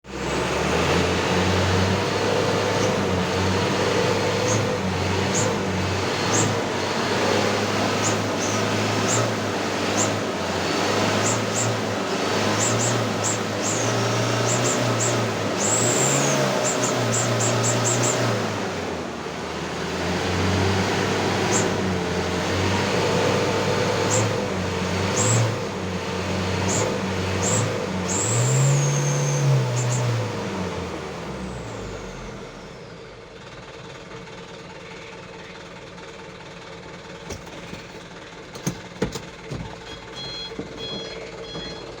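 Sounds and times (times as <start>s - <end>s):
diesel truck engine revving: 0.0s - 42.0s
scattered clicks and knocks: 37.2s - 42.0s.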